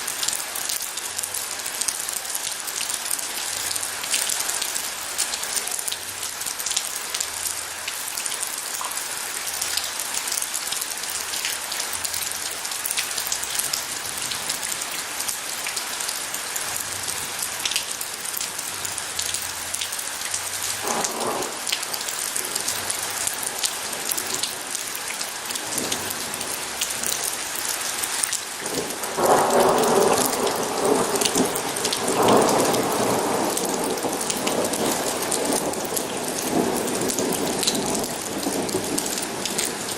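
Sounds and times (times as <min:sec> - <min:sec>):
heavy rain falling: 0:00.0 - 0:39.9
thunder rolling: 0:20.8 - 0:22.1, 0:28.6 - 0:39.9.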